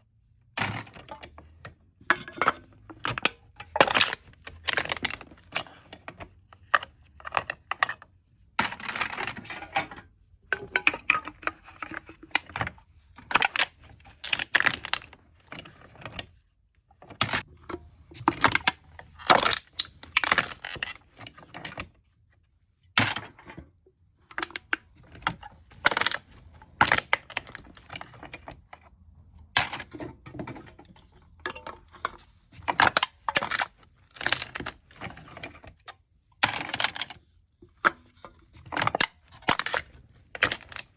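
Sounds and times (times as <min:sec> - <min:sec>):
aluminium cans being crushed: 0:00.6 - 0:08.0, 0:08.6 - 0:12.6, 0:13.2 - 0:16.3, 0:17.2 - 0:21.8, 0:24.3 - 0:28.5, 0:29.6 - 0:35.7, 0:36.4 - 0:40.9.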